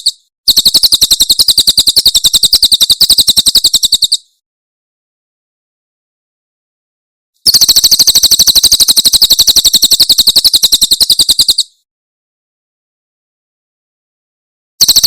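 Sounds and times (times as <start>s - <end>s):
bird trilling call: 0.0s - 4.3s, 7.4s - 11.7s.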